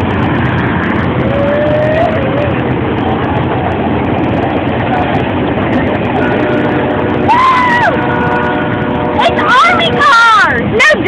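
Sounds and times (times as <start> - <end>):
freight train wagons rumbling: 0.0 - 11.0.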